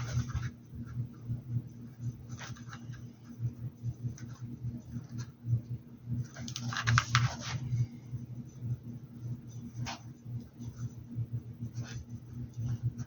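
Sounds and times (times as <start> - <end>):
low steady hum: 0.0 - 13.0
small clicks and scrapes: 6.3 - 7.7.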